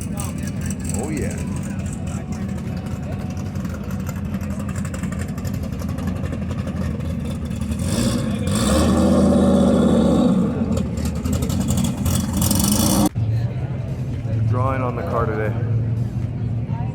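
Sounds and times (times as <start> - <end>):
car engine low rumble: 0.0 - 16.9.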